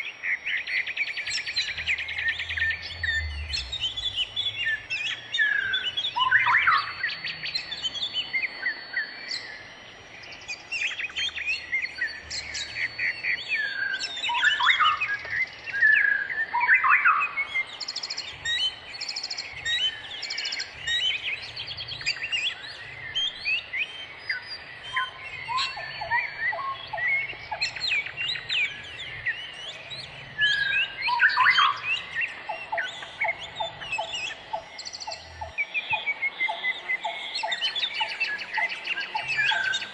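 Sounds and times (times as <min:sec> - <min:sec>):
wild birds singing and calling: 0:00.0 - 0:39.9.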